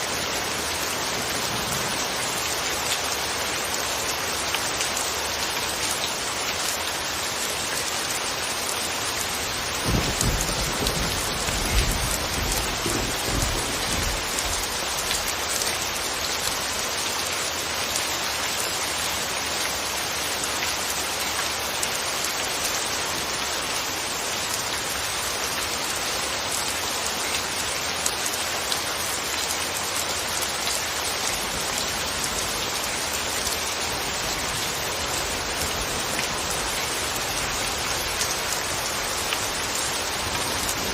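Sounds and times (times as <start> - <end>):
steady rain hiss: 0.0 - 40.9
thunder rumbling: 9.7 - 15.0.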